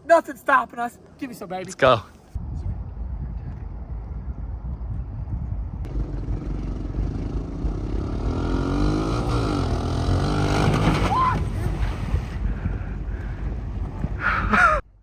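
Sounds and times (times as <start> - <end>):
engine accelerating hard: 5.9 - 12.6.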